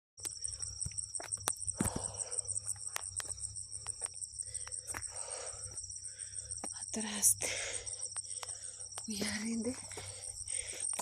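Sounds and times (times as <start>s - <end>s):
insects trilling: 0.2s - 11.0s.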